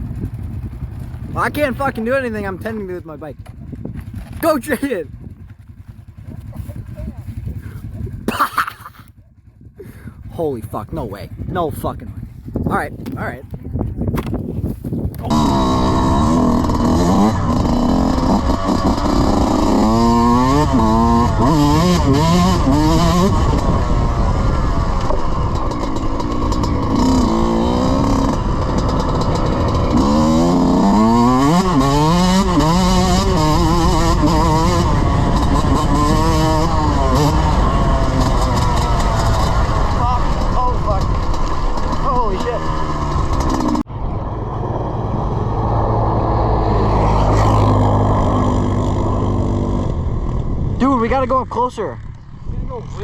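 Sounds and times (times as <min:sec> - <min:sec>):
dirt bike engine revving: 0:15.2 - 0:53.0.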